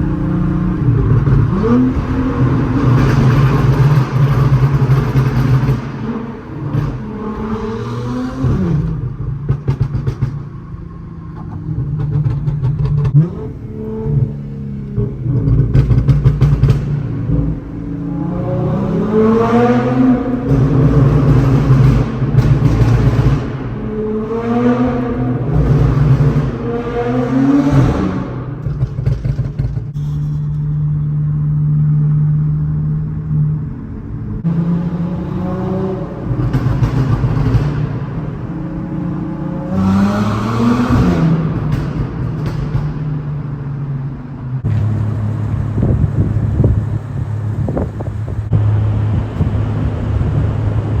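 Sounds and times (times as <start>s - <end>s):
car engines accelerating: 0.0s - 29.8s, 30.6s - 51.0s
car engines idling: 41.8s - 51.0s.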